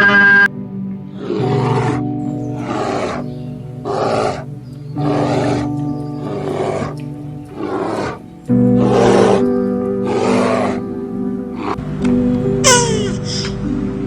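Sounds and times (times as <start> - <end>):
background music with sustained chords: 0.0 - 14.0
animal growling calls: 1.1 - 11.9.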